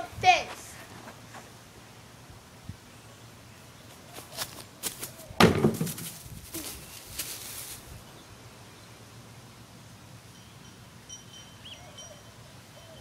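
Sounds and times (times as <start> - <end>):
knocks and thumps against fence: 5.4 - 6.3.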